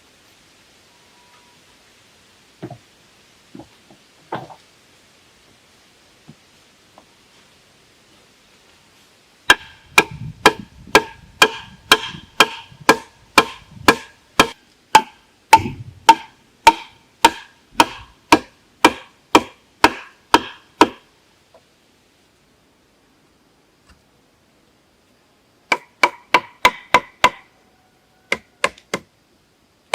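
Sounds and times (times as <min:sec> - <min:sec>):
blade chopping wood: 0:09.5 - 0:21.0.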